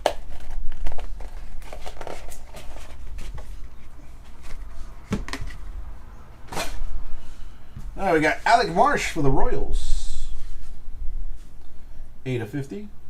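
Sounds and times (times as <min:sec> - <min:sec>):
trading cards rustling and clicking: 0:00.0 - 0:05.6
low hum: 0:00.2 - 0:12.3.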